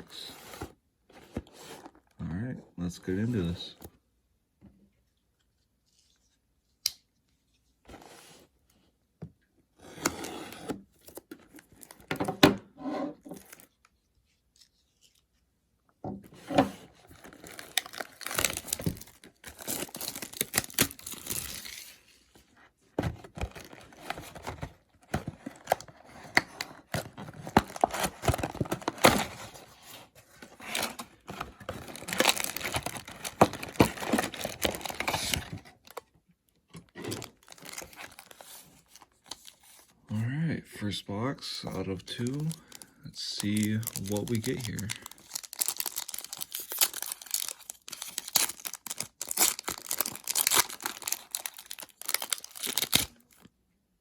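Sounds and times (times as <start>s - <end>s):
shrink wrap crinkling and tearing: 16.9s - 22.3s, 23.2s - 36.1s, 36.9s - 39.8s, 41.7s - 53.5s.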